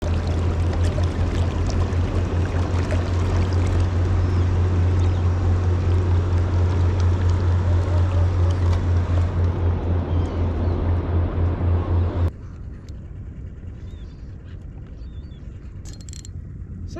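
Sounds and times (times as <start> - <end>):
water splashing against hull: 0.0 - 12.3
boat engine low hum: 0.0 - 16.9.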